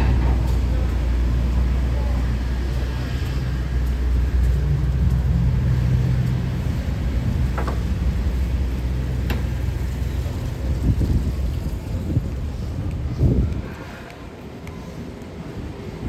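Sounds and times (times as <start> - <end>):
vehicle engine humming past: 0.0 - 12.6
low traffic rumble: 0.0 - 16.0.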